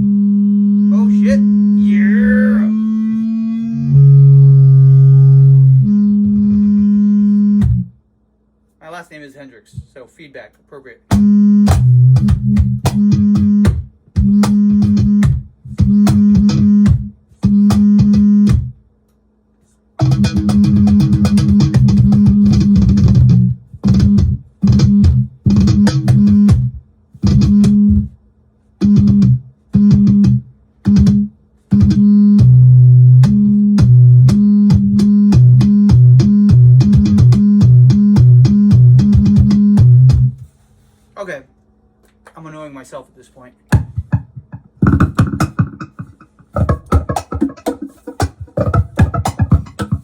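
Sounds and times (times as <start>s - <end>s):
low pulsing bass note: 0.0s - 7.9s, 11.1s - 18.7s, 20.0s - 28.1s, 28.8s - 40.4s
electric bass droning notes: 0.0s - 8.0s, 11.1s - 18.8s, 20.0s - 28.2s, 28.8s - 40.4s, 43.9s - 50.0s.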